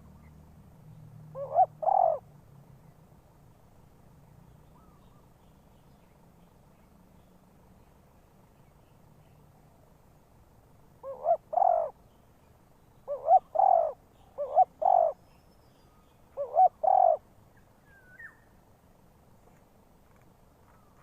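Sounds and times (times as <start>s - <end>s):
dove cooing: 1.3s - 2.2s, 11.0s - 12.0s, 13.1s - 15.2s, 16.4s - 17.2s.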